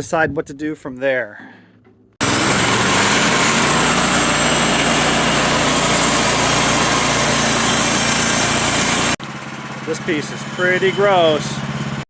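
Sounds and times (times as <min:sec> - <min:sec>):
saw blade cutting log: 0:02.2 - 0:09.2
gas engine running at high throttle: 0:02.2 - 0:12.0.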